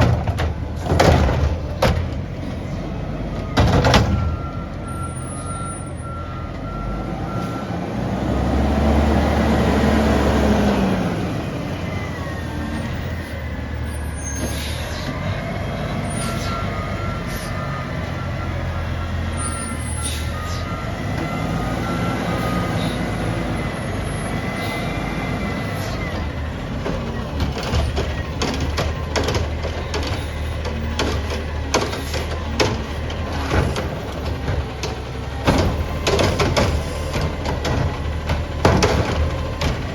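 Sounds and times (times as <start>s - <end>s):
garbage truck engine revving: 0.0s - 39.9s
hydraulics working: 0.0s - 39.9s
reversing beeps: 3.3s - 7.8s, 11.9s - 26.3s
rapid knocks and clatter: 26.8s - 39.9s.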